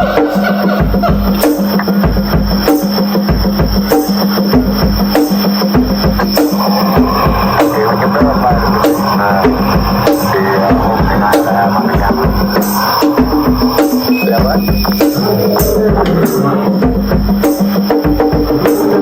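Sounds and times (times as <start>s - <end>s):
bass drum beat: 0.8s - 19.0s
wood-block-like drum hits: 0.8s - 19.0s
wavering animal-like calls: 5.9s - 17.2s.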